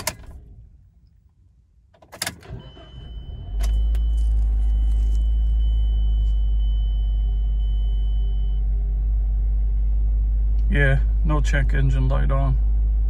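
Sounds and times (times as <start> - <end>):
car engine cranking and idling: 0.0 - 13.0.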